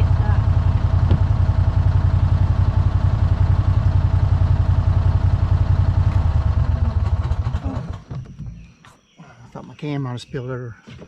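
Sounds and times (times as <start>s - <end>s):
farm vehicle engine throbbing: 0.0s - 8.4s.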